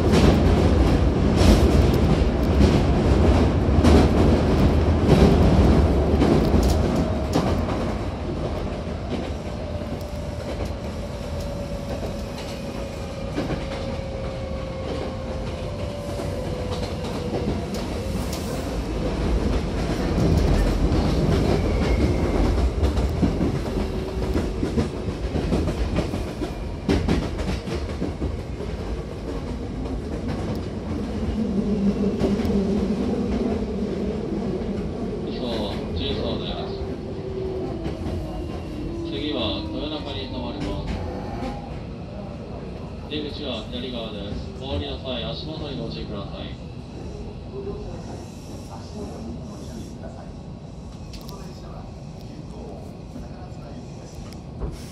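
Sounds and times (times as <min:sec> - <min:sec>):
electric train rumbling: 0:00.0 - 0:54.9.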